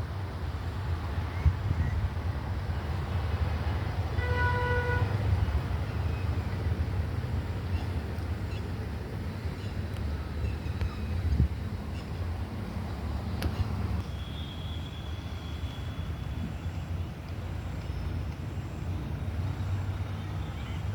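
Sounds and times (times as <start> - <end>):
vehicle horn toot: 4.2 - 5.1.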